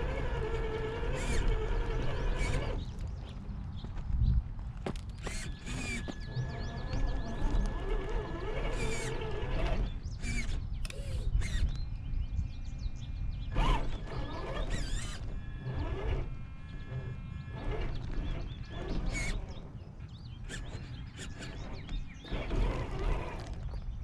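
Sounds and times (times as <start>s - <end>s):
toy car electric motor bursts: 0.0s - 3.0s, 5.2s - 11.7s, 13.5s - 19.6s, 20.4s - 23.7s
mechanical clatter: 0.0s - 3.3s, 4.9s - 11.9s, 13.3s - 24.0s
gear whine: 0.0s - 24.0s.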